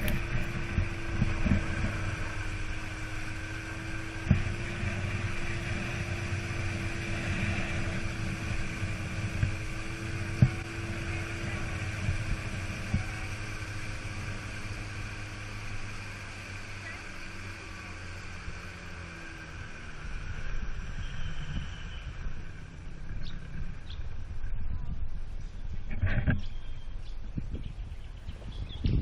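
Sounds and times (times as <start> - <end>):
outboard motor running: 0.0 - 29.0.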